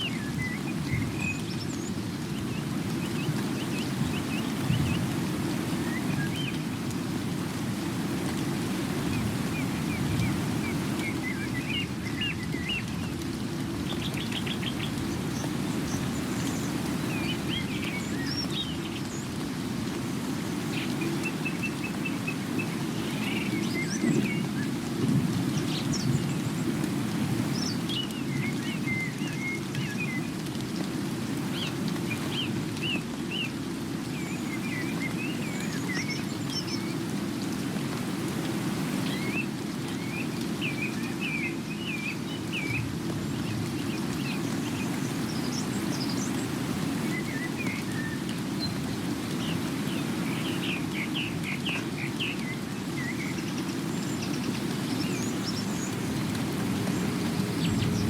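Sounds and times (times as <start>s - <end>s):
steady rain: 0.0s - 58.0s
small birds chirping: 8.8s - 19.7s, 20.4s - 24.8s, 25.4s - 37.1s, 38.9s - 58.0s.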